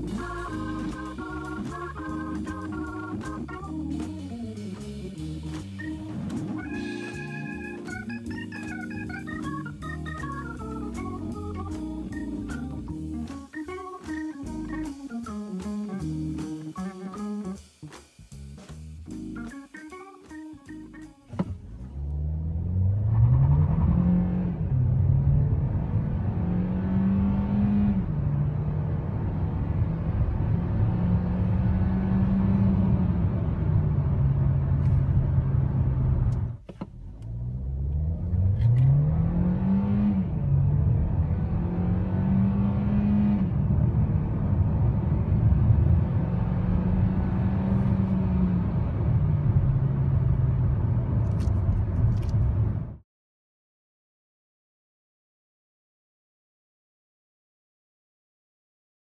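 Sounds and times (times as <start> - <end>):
car engine accelerating hard: 21.3 - 53.0.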